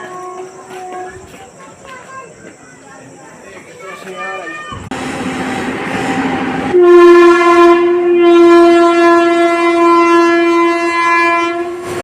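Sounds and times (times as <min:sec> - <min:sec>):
train horn blast: 0:00.0 - 0:01.2, 0:05.0 - 0:12.0
approaching train noise: 0:00.0 - 0:12.0.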